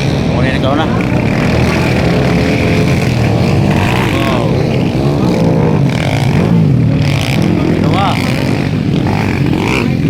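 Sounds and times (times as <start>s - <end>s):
motorcycles racing and revving: 0.0s - 10.0s.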